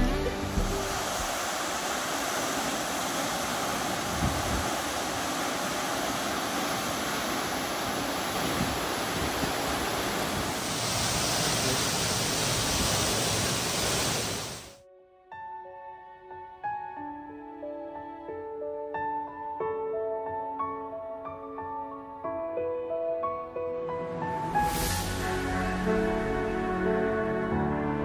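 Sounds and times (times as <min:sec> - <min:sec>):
flowing water rushing: 0:00.0 - 0:14.8.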